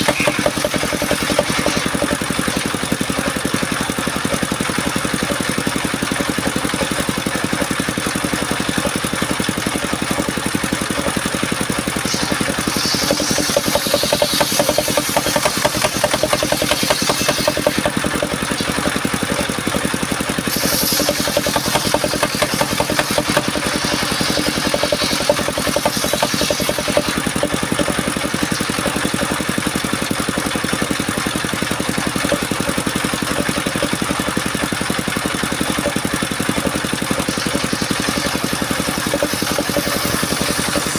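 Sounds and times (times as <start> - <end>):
saw blade cutting wood hiss: 0.0 - 2.6, 11.9 - 18.9, 20.2 - 29.5, 37.3 - 40.9
sawmill engine running: 0.0 - 40.9.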